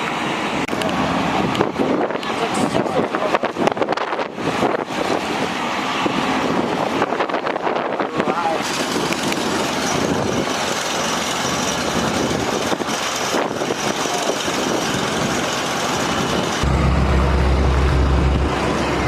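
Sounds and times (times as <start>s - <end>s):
large engine humming: 0.0s - 3.4s, 8.2s - 19.0s
strong wind rushing: 1.1s - 11.0s, 11.8s - 19.0s.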